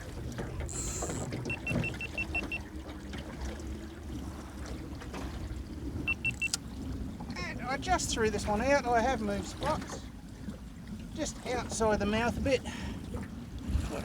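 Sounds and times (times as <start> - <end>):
wind and water rumble around boat: 0.0 - 14.0
short high electronic beeps: 0.8 - 2.6, 6.1 - 6.6.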